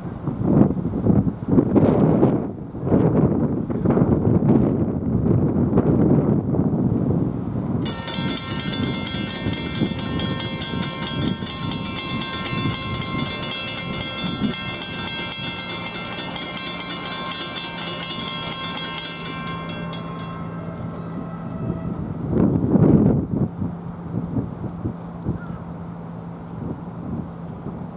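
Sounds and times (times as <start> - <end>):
rail warning bell ringing: 7.8 - 23.7
train rumbling past: 7.8 - 25.1.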